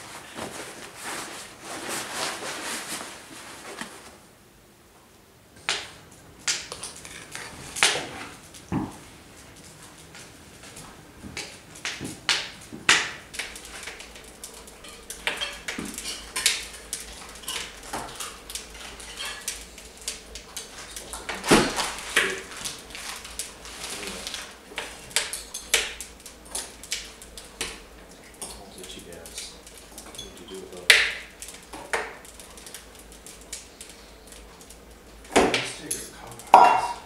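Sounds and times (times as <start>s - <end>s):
spoons clinking against metal pots: 35.9s - 37.0s.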